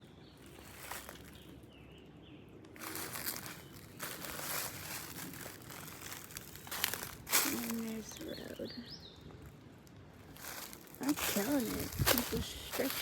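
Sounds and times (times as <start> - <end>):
footsteps through dry leaf litter: 0.0 - 13.0.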